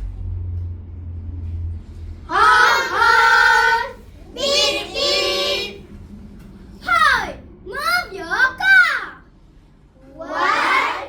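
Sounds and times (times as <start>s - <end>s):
low rumble: 0.0s - 11.0s
children singing in unison: 2.3s - 5.8s, 10.3s - 11.0s.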